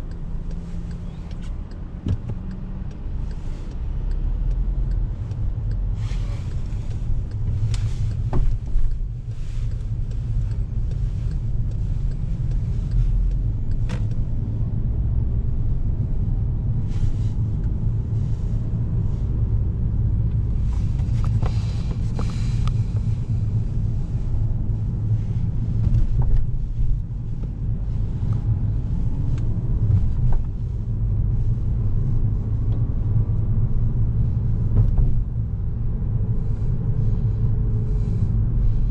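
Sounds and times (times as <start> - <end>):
car engine and tyres rumbling: 0.0 - 38.9.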